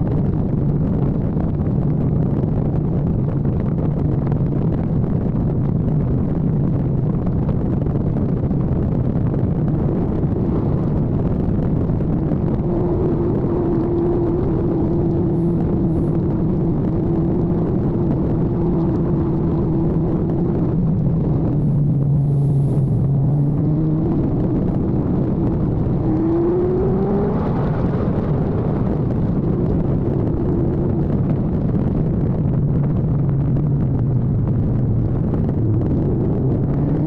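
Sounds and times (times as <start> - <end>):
wind and road noise: 0.0 - 37.0
motorcycle engine cruising: 9.4 - 37.0.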